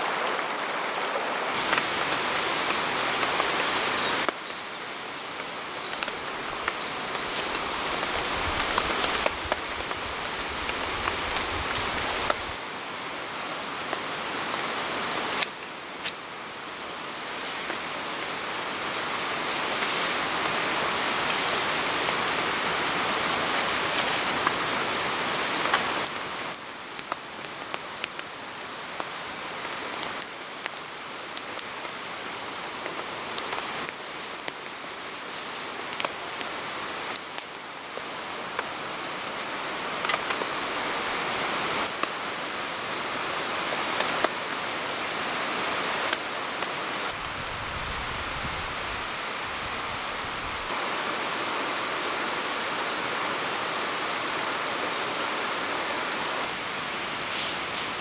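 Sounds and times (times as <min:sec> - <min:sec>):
rain hissing: 0:00.0 - 0:58.0
rain drop ticks: 0:23.2 - 0:35.2.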